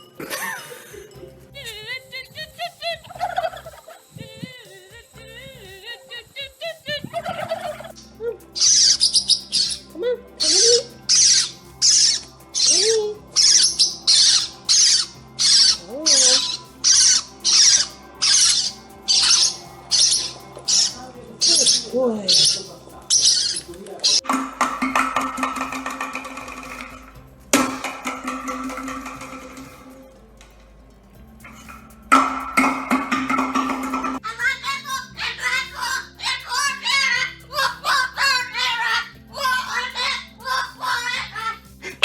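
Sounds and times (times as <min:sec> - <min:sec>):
parrot warbling and chirping: 0:06.3 - 0:30.0, 0:31.4 - 0:41.6
parrot harsh screeches: 0:08.6 - 0:27.9, 0:32.6 - 0:41.6.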